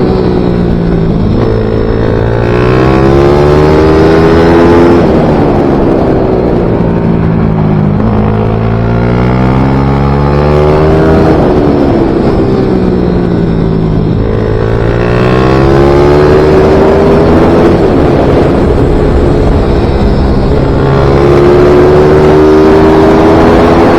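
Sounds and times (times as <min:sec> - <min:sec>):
small motorcycle engine revving: 0:00.0 - 0:23.9.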